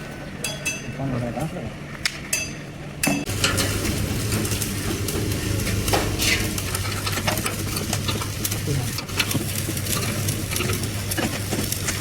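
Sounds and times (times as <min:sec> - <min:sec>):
welding arc crackling: 0:03.3 - 0:12.0.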